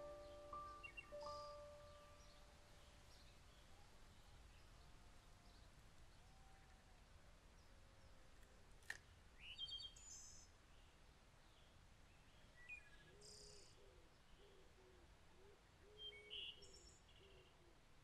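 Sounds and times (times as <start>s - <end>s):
low repeated hooting: 0.0s - 2.4s
birds chirping and trilling: 0.0s - 3.6s.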